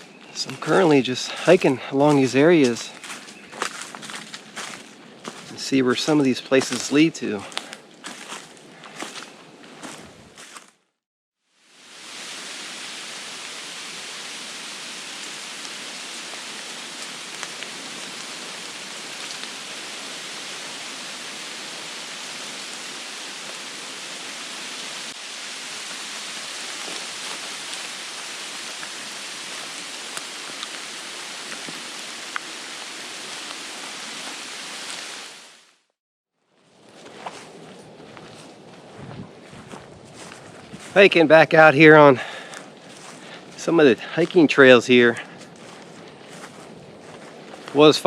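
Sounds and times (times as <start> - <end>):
hiss of water: 11.6 - 35.7.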